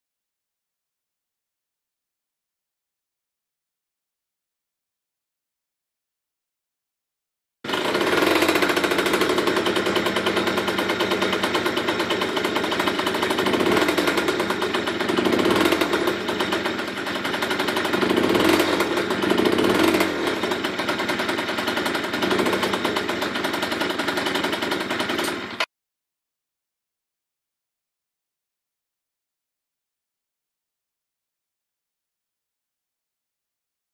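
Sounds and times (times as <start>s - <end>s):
moped engine revving: 7.7s - 25.7s.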